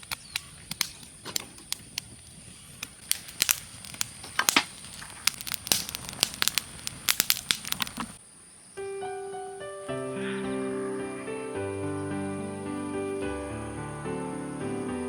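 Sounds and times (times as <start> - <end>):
wood fire crackling: 0.0 - 8.2
music: 8.8 - 15.0.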